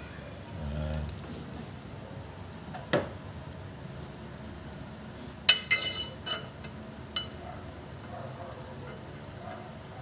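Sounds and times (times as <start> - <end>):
metal tools knocking and clinking: 5.5 - 7.4.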